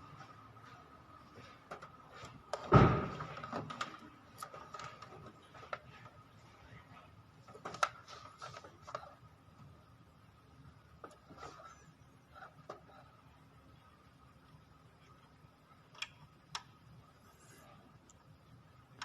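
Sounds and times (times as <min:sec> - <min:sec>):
objects being handled: 0:00.6 - 0:09.2
heavy thump: 0:02.7 - 0:03.3.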